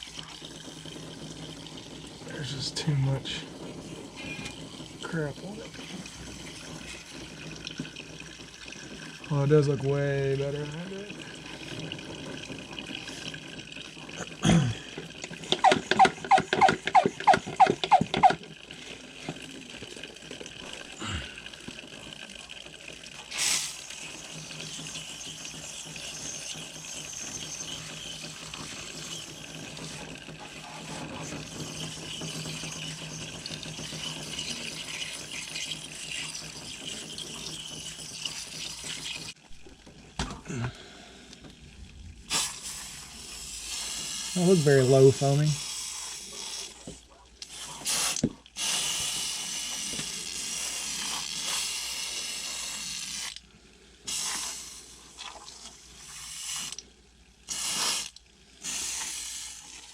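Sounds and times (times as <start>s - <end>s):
liquid spraying hiss: 23.3s - 23.9s, 42.3s - 46.8s, 47.5s - 53.4s, 54.1s - 55.2s, 56.0s - 56.8s, 57.4s - 59.9s.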